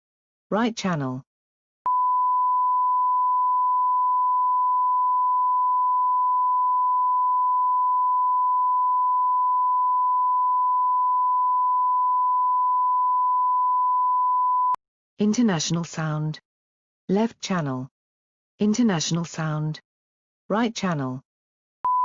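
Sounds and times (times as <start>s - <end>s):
sine wave test tone: 1.9s - 14.8s.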